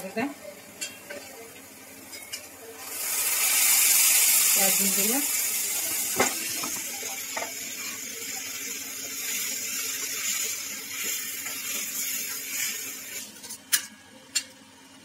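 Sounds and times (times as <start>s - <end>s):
paste sizzling in hot oil: 2.8s - 13.4s.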